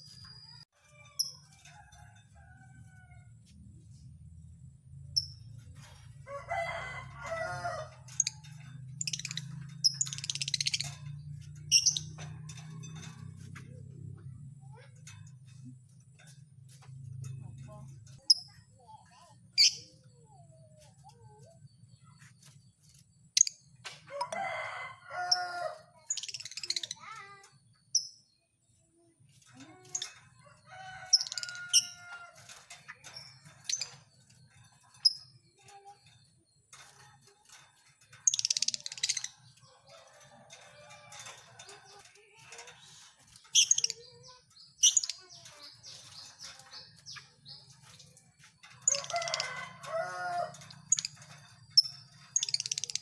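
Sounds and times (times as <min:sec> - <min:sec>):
birds chirping and screeching: 0:00.0 - 0:53.0.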